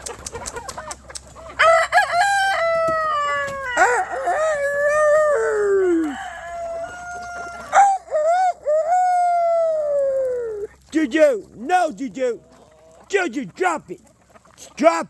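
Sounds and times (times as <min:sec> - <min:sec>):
rooster crowing: 0:01.6 - 0:10.6.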